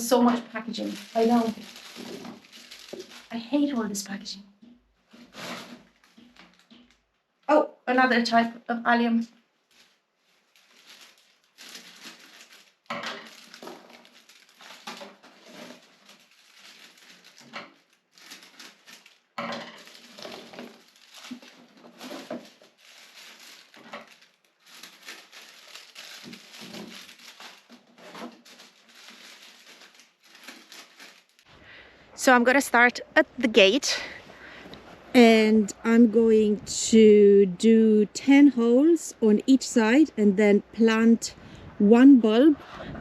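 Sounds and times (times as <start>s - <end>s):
plastic packaging crinkling: 0.0s - 4.0s, 5.0s - 7.4s, 9.3s - 31.5s.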